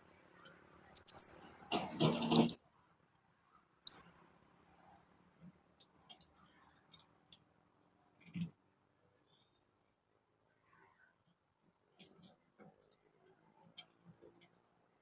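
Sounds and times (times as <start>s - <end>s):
parrot chirps: 1.0s - 1.4s, 2.3s - 2.5s.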